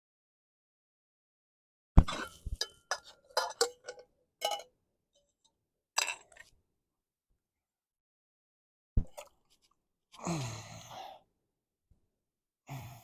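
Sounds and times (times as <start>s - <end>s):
metal cookware clinking: 2.1s - 5.4s.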